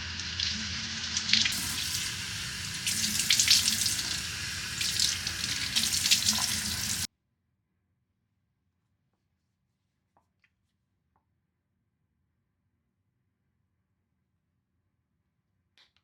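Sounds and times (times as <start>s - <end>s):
tap water running into sink: 0.0s - 7.1s.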